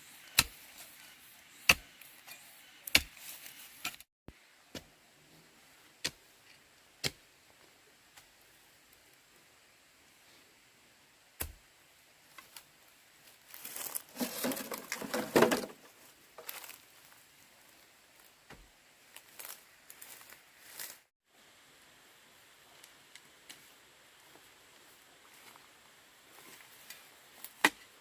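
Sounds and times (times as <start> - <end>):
rustling and crinkling: 12.3 - 21.1.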